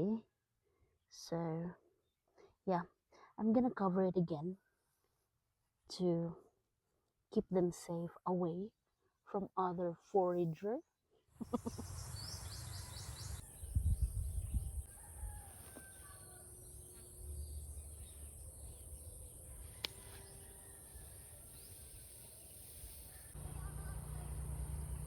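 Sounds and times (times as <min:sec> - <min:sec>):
distant rooster crowing: 0:12.2 - 0:25.0
steady high hiss: 0:16.8 - 0:25.0.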